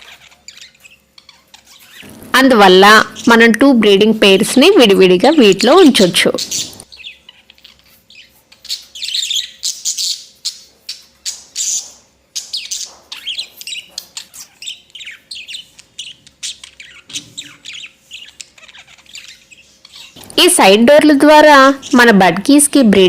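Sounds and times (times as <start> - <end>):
budgerigars chirping: 0.0 - 2.2, 5.4 - 20.8.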